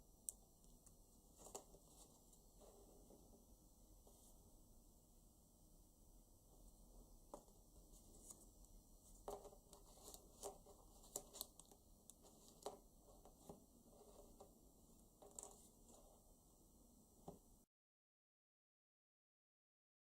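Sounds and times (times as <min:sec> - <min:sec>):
banknote paper rustling: 0:01.2 - 0:02.9, 0:07.4 - 0:14.6, 0:15.2 - 0:16.2.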